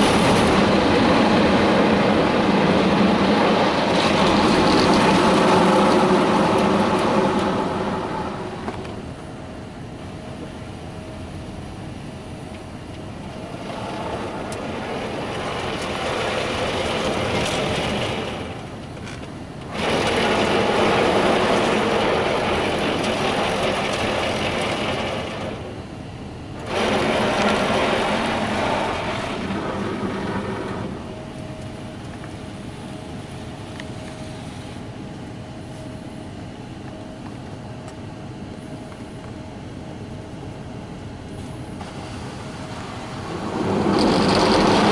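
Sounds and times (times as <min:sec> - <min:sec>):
water jets hissing on car: 0:00.0 - 0:09.1, 0:13.1 - 0:18.8, 0:19.7 - 0:25.9, 0:26.6 - 0:31.1, 0:41.4 - 0:44.9
faint steady hum: 0:00.0 - 0:44.9.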